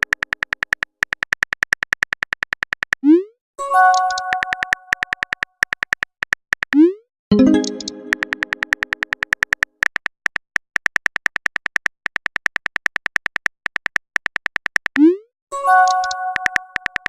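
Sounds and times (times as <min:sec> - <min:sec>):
typing ticks: 0:00.0 - 0:03.0, 0:03.8 - 0:15.1, 0:15.7 - 0:17.0
notification chime: 0:03.6 - 0:04.7, 0:07.3 - 0:08.6.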